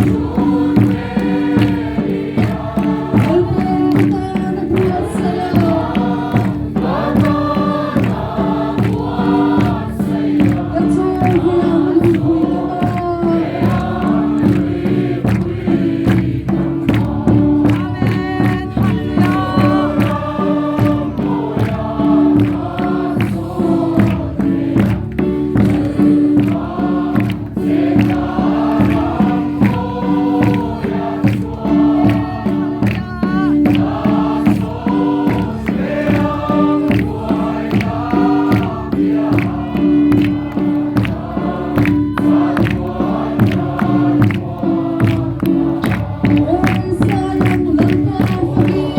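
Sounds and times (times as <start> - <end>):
choir singing a gospel hymn: 0.0 - 48.9
steady percussive beat: 0.0 - 48.9.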